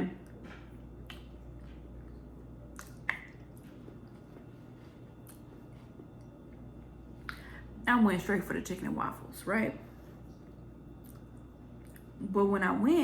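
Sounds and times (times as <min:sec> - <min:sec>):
wet mouth eating sounds: 0:00.2 - 0:07.5, 0:10.2 - 0:12.2.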